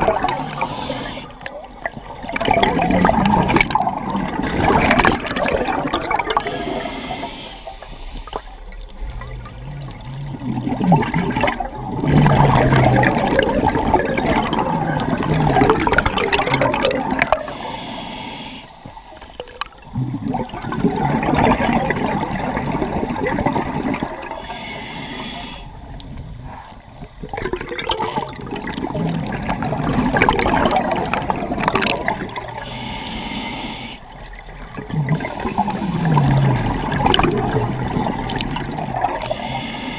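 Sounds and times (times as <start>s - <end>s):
regulator hissing inhale: 0.3s - 1.5s, 6.4s - 8.8s, 14.8s - 15.6s, 17.4s - 19.6s, 24.4s - 25.9s, 29.9s - 31.4s, 32.5s - 34.4s, 35.1s - 36.7s, 39.2s - 39.9s
bubbling exhaust: 2.1s - 17.8s, 19.4s - 39.9s.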